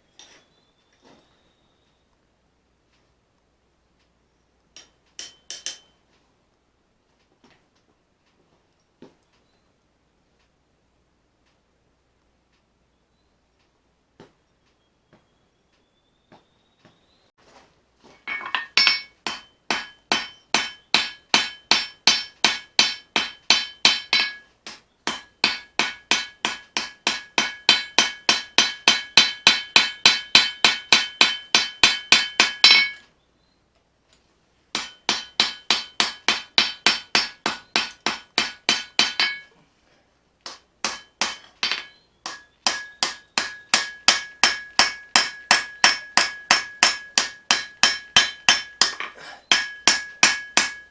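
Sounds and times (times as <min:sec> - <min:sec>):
hammer striking an anvil: 0:04.8 - 0:05.9, 0:18.2 - 0:24.5, 0:25.1 - 0:33.0, 0:34.8 - 0:39.5, 0:40.5 - 0:50.9.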